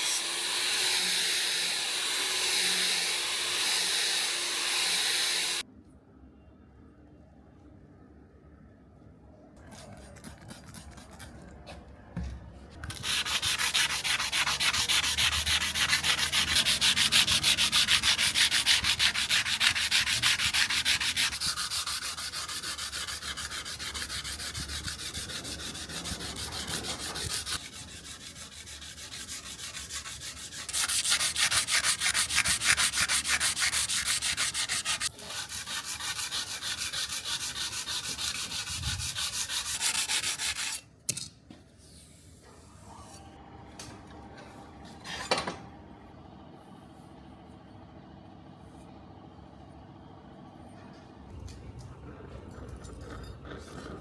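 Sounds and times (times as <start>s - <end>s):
knife blade being sanded: 12.9s - 40.8s.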